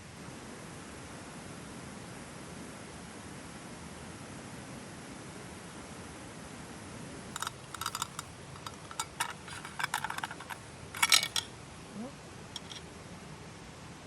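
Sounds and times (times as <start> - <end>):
small clicks and crackles of handling: 7.4 - 11.5, 12.6 - 12.8.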